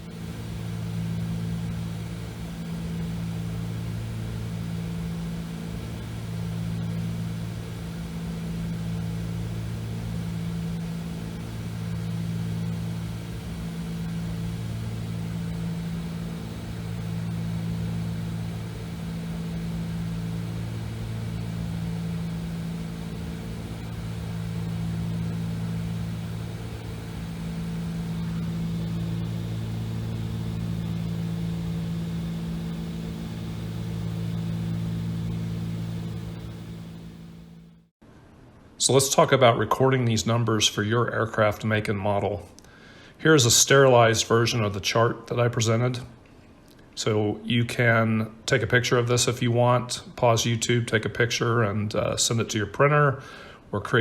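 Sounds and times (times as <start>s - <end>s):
aircraft engines droning in cabin: 0.0s - 37.9s.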